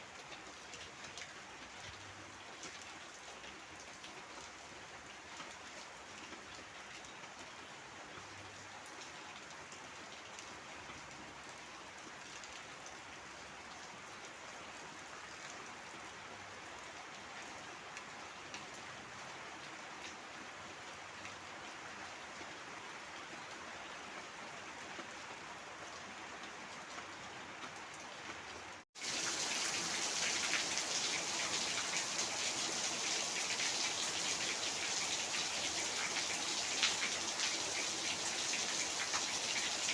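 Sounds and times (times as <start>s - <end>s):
heavy rain falling: 28.7s - 39.9s.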